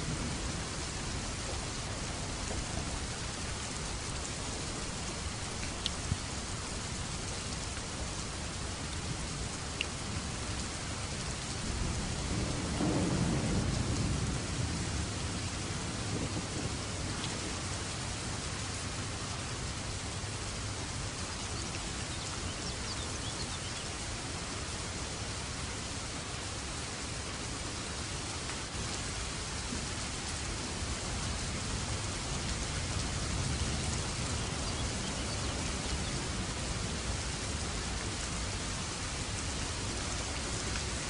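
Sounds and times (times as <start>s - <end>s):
low roll of thunder: 0.0s - 3.3s, 11.6s - 18.5s
rain hissing: 0.0s - 41.0s.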